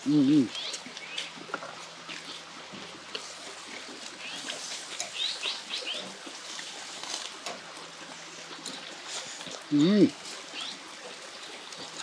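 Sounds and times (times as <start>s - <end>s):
songbird chirping: 5.0s - 6.1s.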